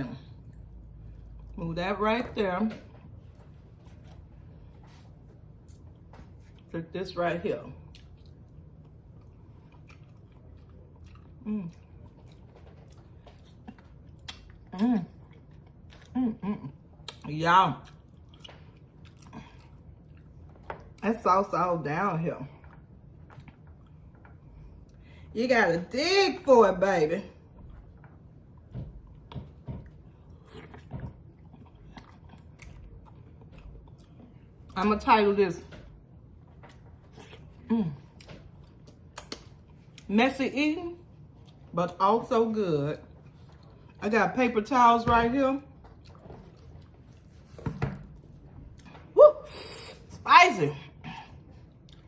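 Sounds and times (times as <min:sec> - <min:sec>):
eating smacks and crunches: 0:07.8 - 0:16.2, 0:16.9 - 0:21.0, 0:29.0 - 0:34.8, 0:36.5 - 0:40.1, 0:51.6 - 0:52.0
person chewing: 0:07.8 - 0:21.0, 0:29.0 - 0:34.8, 0:36.5 - 0:40.1, 0:45.9 - 0:49.1, 0:51.4 - 0:52.0.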